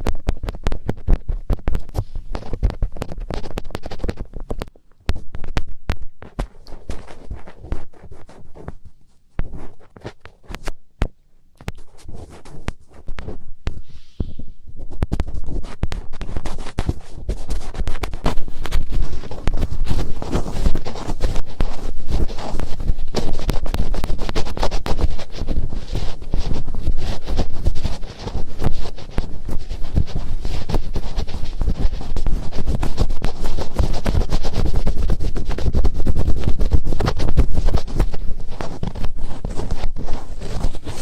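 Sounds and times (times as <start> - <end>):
fingertips rubbing on microphone: 0.0 - 10.8, 11.6 - 41.0.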